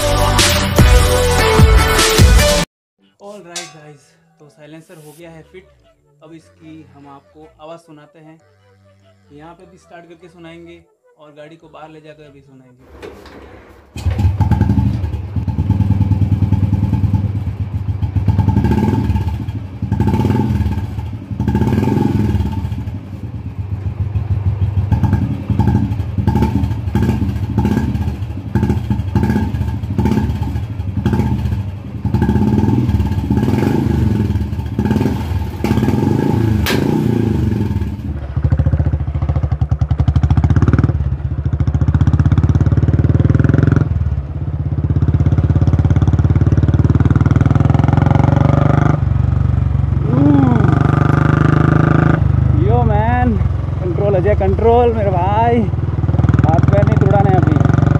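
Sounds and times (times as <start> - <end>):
motorcycle engine revving: 12.8 - 57.9.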